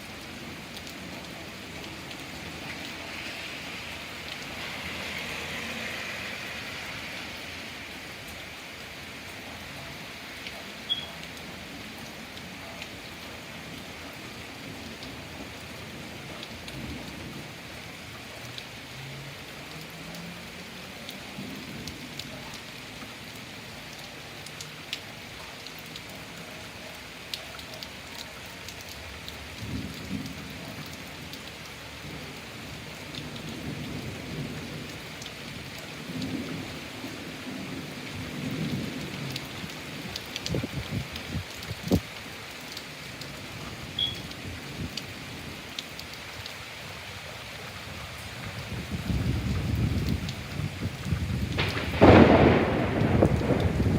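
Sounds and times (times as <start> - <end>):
heavy rain: 0.0 - 53.9
thunder rumbling: 48.6 - 53.9.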